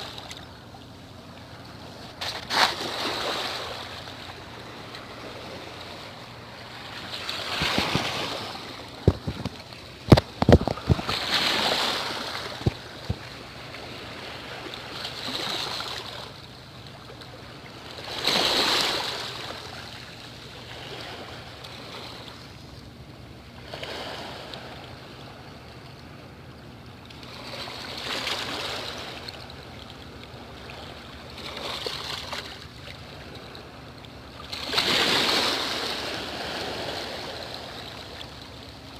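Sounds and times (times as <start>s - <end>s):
sea waves washing in: 0.0s - 38.9s
sharp clicks and knocks: 9.0s - 11.1s.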